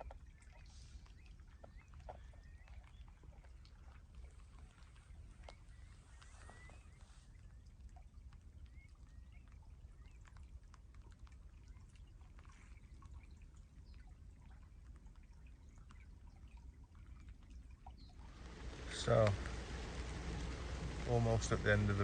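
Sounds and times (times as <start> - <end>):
faint bird chirps: 0.0 - 3.5, 4.8 - 7.8
faint ticks and drips: 0.0 - 22.0
low rumble of wind: 17.5 - 22.0.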